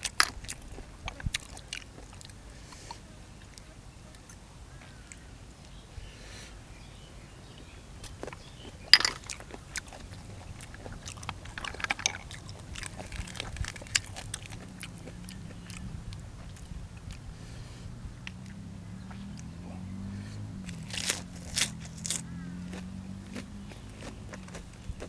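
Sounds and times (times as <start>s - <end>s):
chewing with wet clicks: 0.0s - 4.4s, 7.5s - 17.4s, 18.2s - 25.0s
loud sharp crunch: 8.0s - 17.2s, 20.6s - 25.0s.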